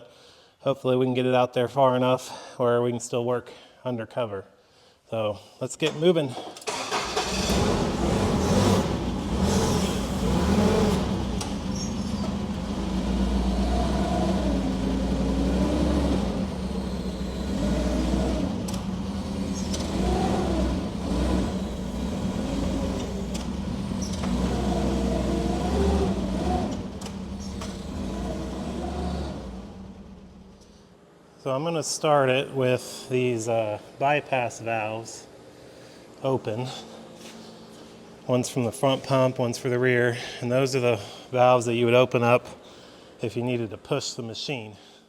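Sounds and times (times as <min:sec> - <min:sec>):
forklift engine revving: 0:06.6 - 0:30.9.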